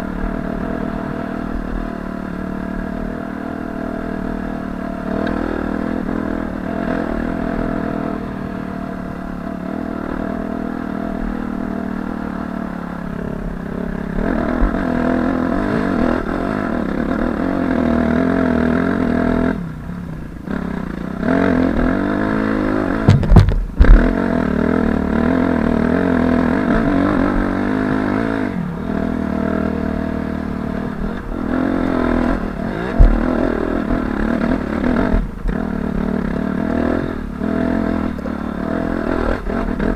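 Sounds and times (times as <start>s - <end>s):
dirt bike engine revving: 0.0s - 39.9s
sharp knocks: 23.0s - 24.1s.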